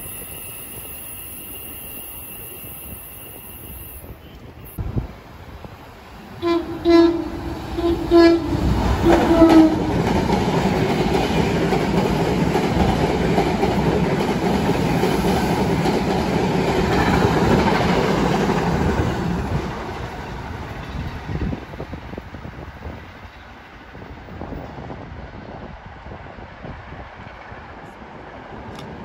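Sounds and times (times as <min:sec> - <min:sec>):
train passing at speed: 0:00.0 - 0:29.0
train horn blasts: 0:06.4 - 0:10.0.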